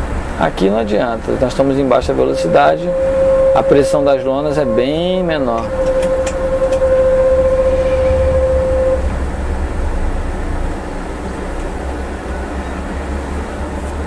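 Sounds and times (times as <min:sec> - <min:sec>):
diesel engine droning: 0:00.0 - 0:14.0
steady clear tone: 0:00.5 - 0:11.3.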